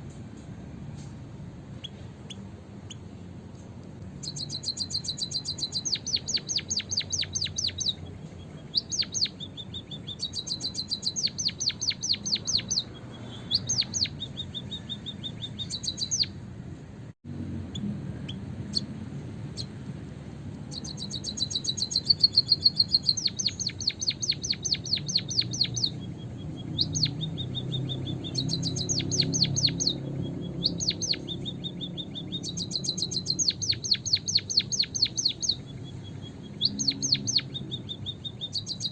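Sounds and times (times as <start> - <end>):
bird calling in rapid high notes: 4.2 - 16.4, 20.7 - 38.9.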